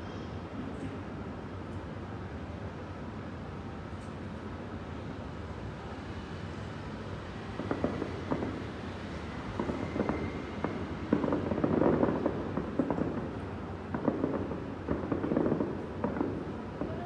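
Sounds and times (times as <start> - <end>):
fireworks bangs and crackles: 7.3 - 17.0.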